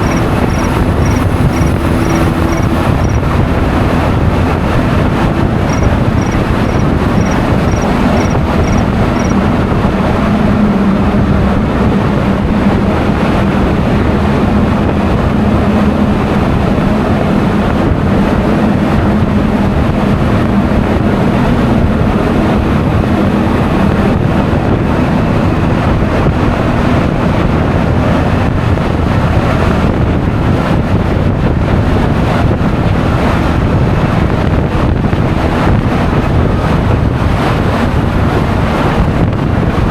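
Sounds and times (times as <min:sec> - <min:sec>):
short high beeps: 0:00.0 - 0:03.2, 0:05.7 - 0:09.4
scooter engine drone: 0:00.0 - 0:39.9
wind buffeting microphone: 0:00.0 - 0:39.9.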